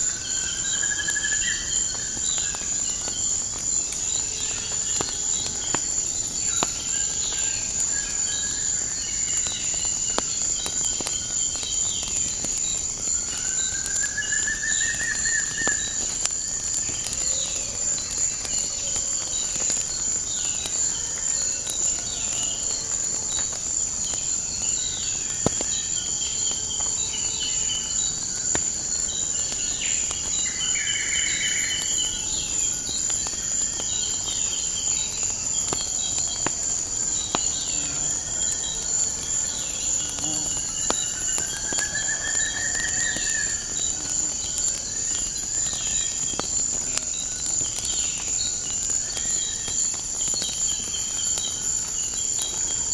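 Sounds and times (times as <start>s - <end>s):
insect chorus: 0.0s - 52.9s
wood fire crackling: 0.0s - 52.9s
birds chirping: 29.5s - 44.1s.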